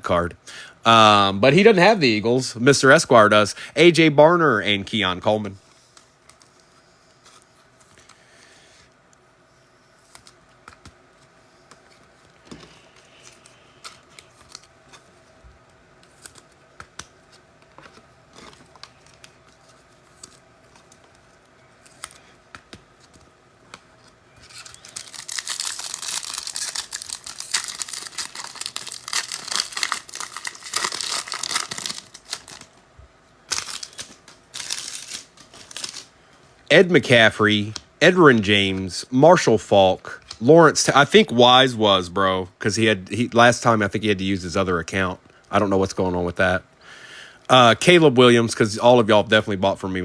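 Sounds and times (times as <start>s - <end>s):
cards clicking and tapping: 16.1s - 19.4s, 21.8s - 24.5s
foil wrapper tearing and crinkling: 24.4s - 32.7s, 33.5s - 36.1s.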